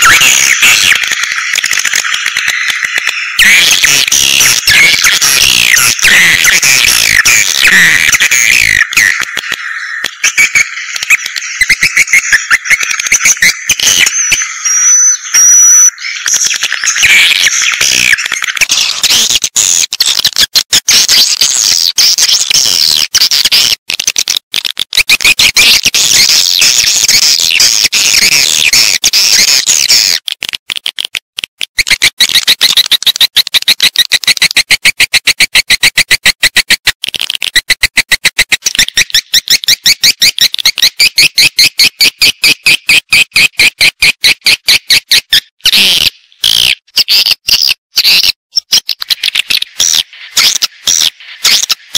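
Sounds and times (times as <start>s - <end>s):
swiftlet twittering chirps: 0.0s - 19.0s
high whistle tones: 10.2s - 17.7s.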